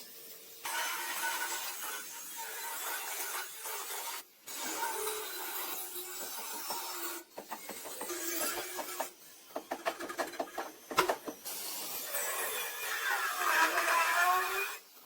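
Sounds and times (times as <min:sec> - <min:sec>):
hand tool scraping metal: 0:04.5 - 0:15.0.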